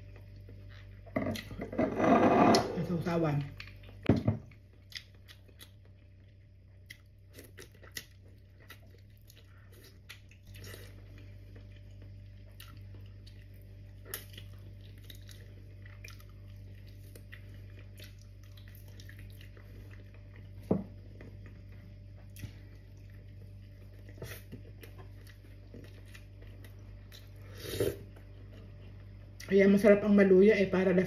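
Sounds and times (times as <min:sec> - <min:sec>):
steady low hum: 0:00.0 - 0:31.0
chewing and wet mouth clicks: 0:04.7 - 0:20.5.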